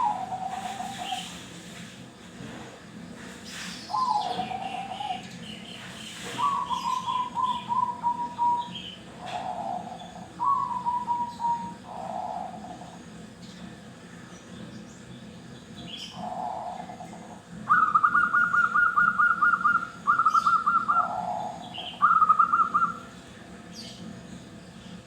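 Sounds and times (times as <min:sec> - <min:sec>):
doves cooing: 0:00.0 - 0:01.5, 0:06.2 - 0:13.1, 0:16.1 - 0:23.2.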